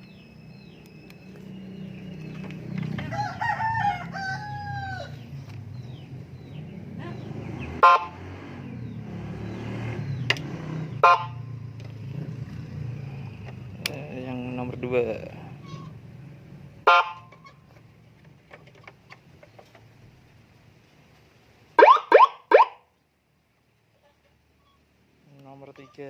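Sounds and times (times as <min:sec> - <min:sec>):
rooster crow from horn speaker: 0:03.0 - 0:05.2.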